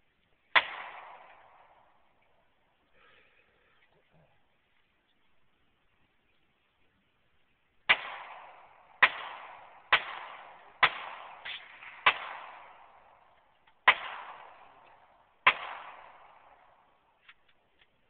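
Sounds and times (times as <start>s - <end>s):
rifle gunshots with echo: 0.5s - 2.2s, 7.9s - 17.2s.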